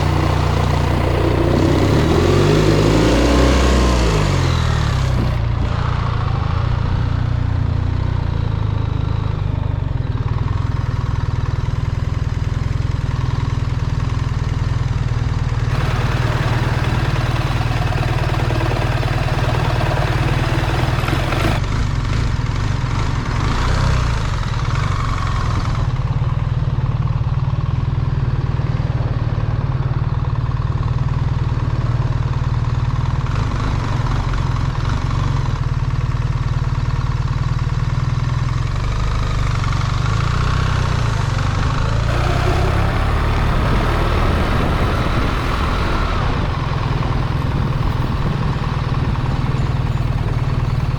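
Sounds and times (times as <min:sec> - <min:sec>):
road noise: 0:00.0 - 0:12.2, 0:15.4 - 0:21.8, 0:41.2 - 0:50.9
motorcycle engine running: 0:00.0 - 0:50.9
wind noise on microphone: 0:42.1 - 0:50.9.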